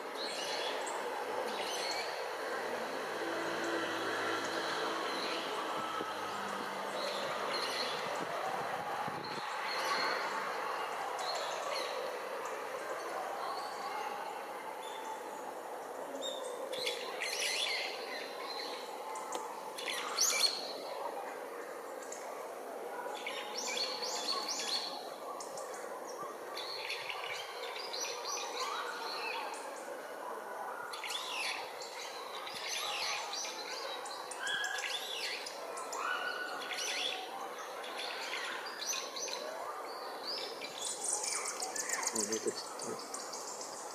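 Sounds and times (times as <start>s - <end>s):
wild birds calling and chirping: 0.0s - 43.9s
magpies calling: 30.8s - 43.9s.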